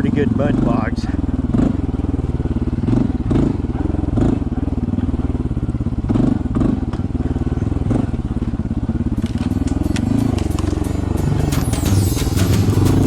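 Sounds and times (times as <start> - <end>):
motorbike engine running: 0.0 - 13.0
knocks and clatter over rough ground: 6.1 - 13.0.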